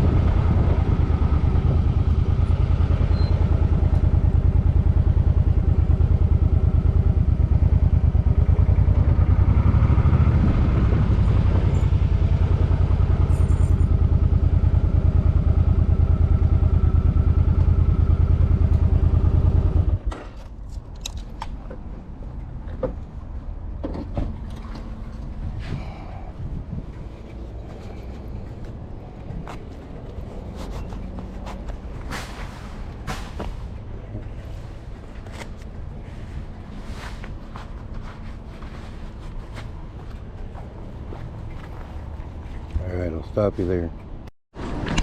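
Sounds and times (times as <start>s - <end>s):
motorcycle engine idling: 0.0s - 10.4s, 11.2s - 20.0s.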